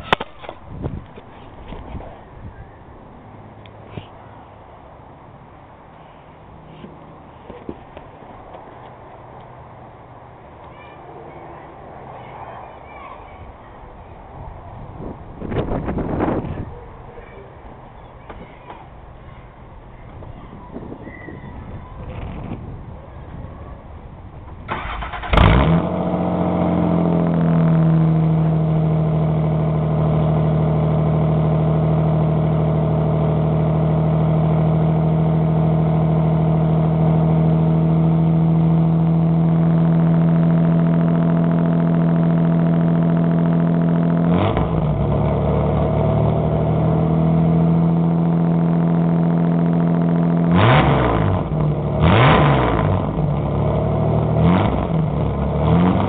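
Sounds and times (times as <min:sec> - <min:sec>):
car engine starting and revving: 0:24.5 - 0:56.0.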